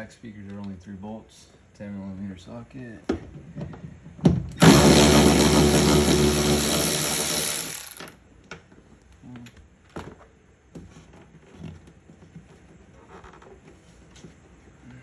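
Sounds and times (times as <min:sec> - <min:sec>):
power driver spinning: 0:04.6 - 0:08.1.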